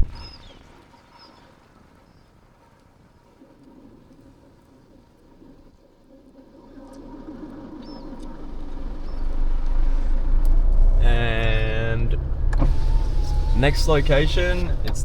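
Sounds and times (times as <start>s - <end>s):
car rumble: 6.6s - 15.0s.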